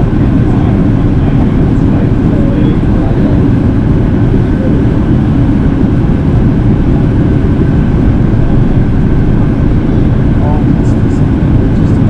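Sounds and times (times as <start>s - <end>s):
aircraft cabin engine noise: 0.0s - 12.0s
faint steady whine: 0.0s - 12.0s.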